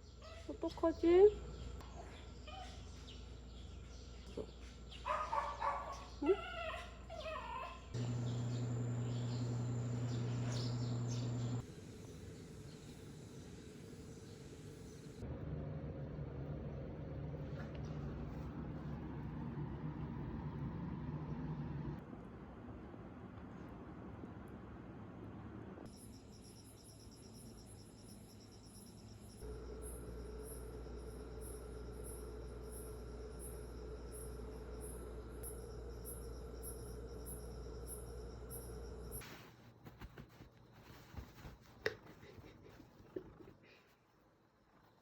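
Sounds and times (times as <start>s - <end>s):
faint bird chirps: 0.0s - 11.6s
low mechanical hum: 0.0s - 42.6s
crickets chirping: 25.9s - 39.3s.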